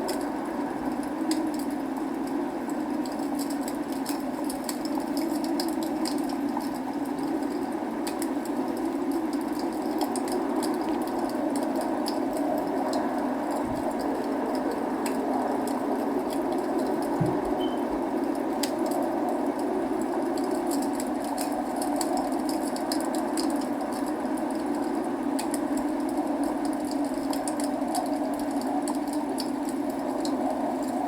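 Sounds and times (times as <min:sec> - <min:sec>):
log fire crackling: 0:00.0 - 0:31.0
rain rushing: 0:00.0 - 0:31.0.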